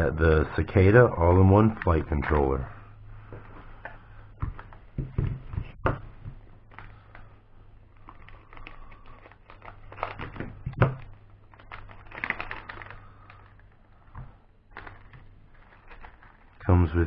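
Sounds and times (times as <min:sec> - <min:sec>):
plastic packaging crinkling: 0:06.4 - 0:16.8.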